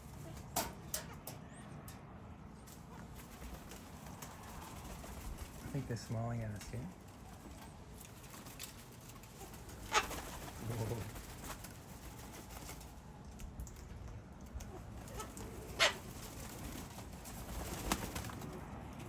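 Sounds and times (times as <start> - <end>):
cockatoo squawks: 9.8 - 10.2, 15.0 - 16.1.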